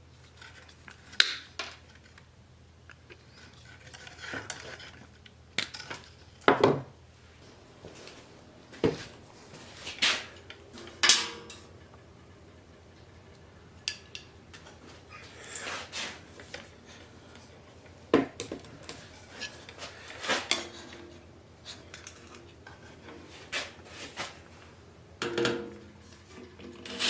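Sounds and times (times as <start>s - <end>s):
metal tools clanking: 8.7s - 17.4s.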